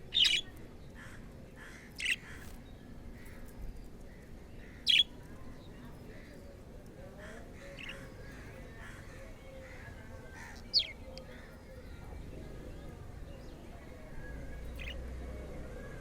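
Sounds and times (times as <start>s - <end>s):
soft bird chattering: 0.0s - 0.6s, 1.6s - 2.5s, 4.6s - 5.2s, 7.3s - 12.0s, 14.5s - 15.0s
budgerigar chirps: 7.7s - 8.1s.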